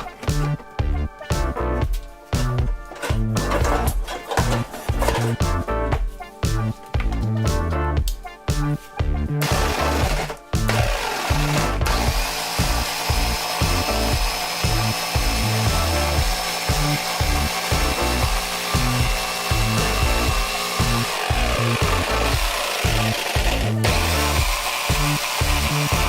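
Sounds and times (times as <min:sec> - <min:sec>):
background music: 0:00.0 - 0:26.0
electric saw cutting wood: 0:09.4 - 0:26.0.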